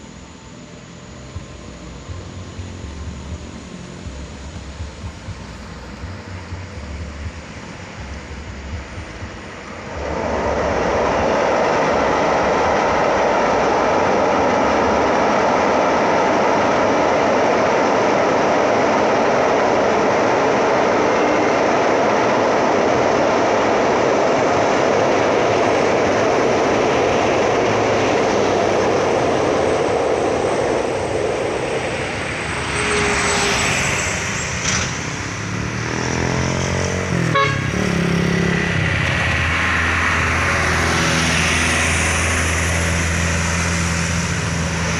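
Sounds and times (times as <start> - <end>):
heavy vehicle engine hum: 0.0 - 44.9
train wheels rumbling on rails: 0.0 - 44.9.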